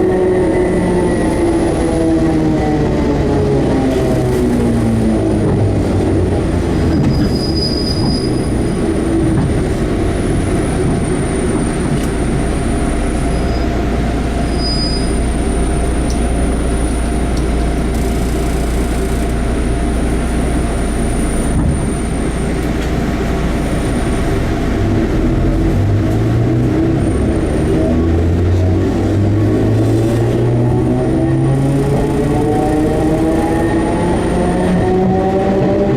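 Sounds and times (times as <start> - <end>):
train wheels rumbling on rail: 0.0 - 35.9
high-pitched wheel squeal: 7.0 - 8.8, 14.4 - 15.4.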